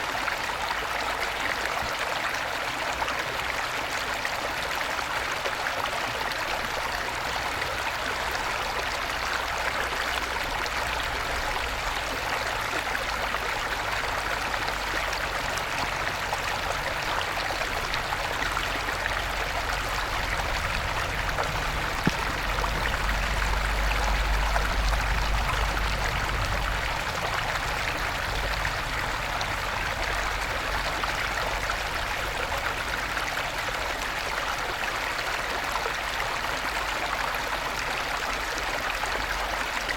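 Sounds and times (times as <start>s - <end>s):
stream babbling over stones: 0.0s - 39.9s
low rumble: 19.2s - 32.6s.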